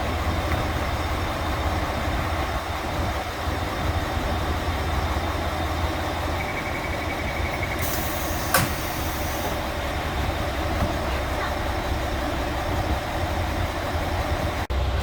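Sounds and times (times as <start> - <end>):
diesel railcar rumbling: 0.0 - 15.0
faint rapid beeping: 6.3 - 8.0
air hiss: 7.8 - 9.6.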